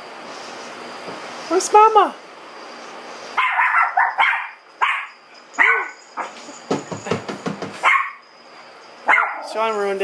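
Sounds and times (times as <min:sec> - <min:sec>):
small dog yapping: 0:03.4 - 0:06.4, 0:07.8 - 0:08.2, 0:09.1 - 0:09.6.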